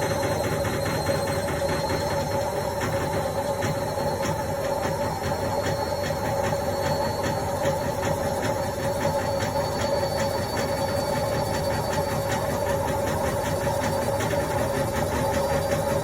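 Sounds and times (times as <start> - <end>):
washing machine motor hum: 0.0 - 16.0.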